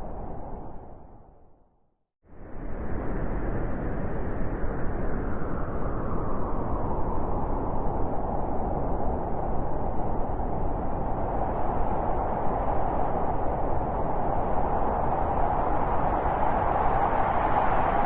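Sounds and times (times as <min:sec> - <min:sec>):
blizzard wind howling: 0:00.0 - 0:01.7, 0:02.3 - 0:18.0.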